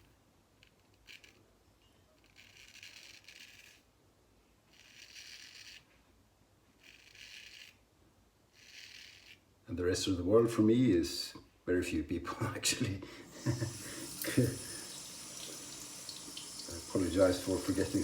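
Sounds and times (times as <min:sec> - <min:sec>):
straight razor scraping stubble: 0:06.8 - 0:07.8, 0:08.5 - 0:09.4.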